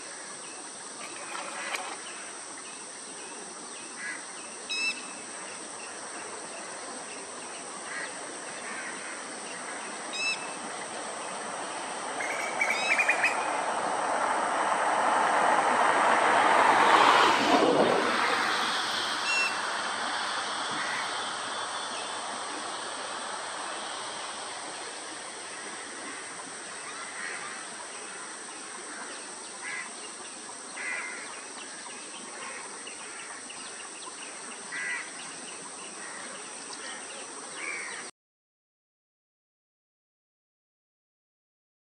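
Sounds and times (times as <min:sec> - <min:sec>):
faint high hiss: 0:00.0 - 0:38.0
broad rushing noise: 0:05.1 - 0:36.2
bird calling: 0:07.9 - 0:13.7, 0:17.8 - 0:30.2.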